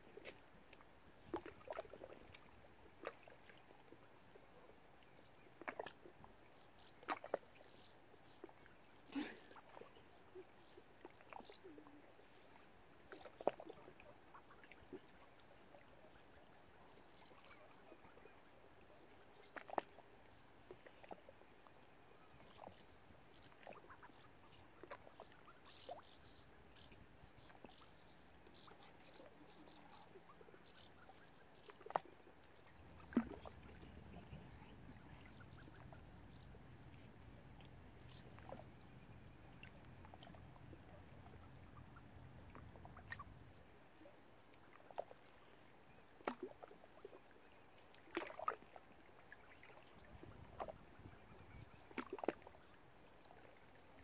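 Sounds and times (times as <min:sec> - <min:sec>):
small water splashes: 0:00.0 - 0:54.0
faint high bird chirps: 0:22.2 - 0:43.6
low steady rumble: 0:33.6 - 0:43.4.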